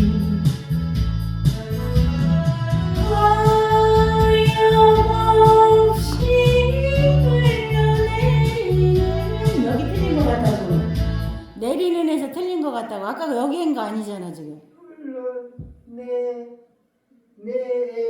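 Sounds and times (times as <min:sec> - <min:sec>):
woman singing: 0:00.0 - 0:00.6, 0:02.9 - 0:14.6
trot backing track: 0:00.0 - 0:11.4.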